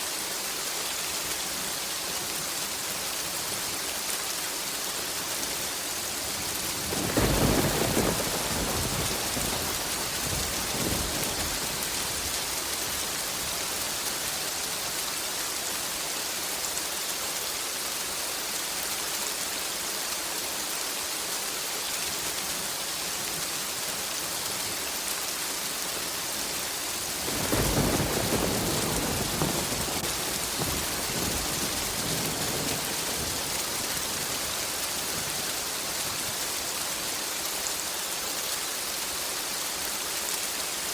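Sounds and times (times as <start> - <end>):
rain hiss: 0.0 - 40.9
thunder rumbling: 6.3 - 14.2, 26.9 - 36.4.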